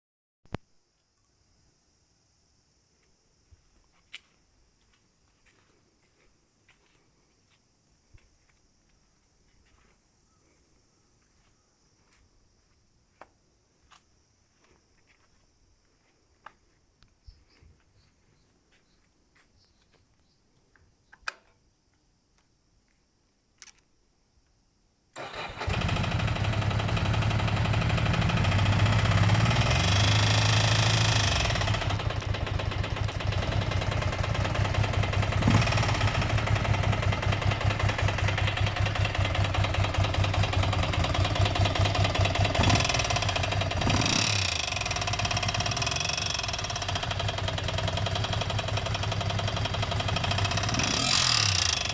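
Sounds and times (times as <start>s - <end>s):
motorcycle engine running and revving: 25.6s - 51.9s.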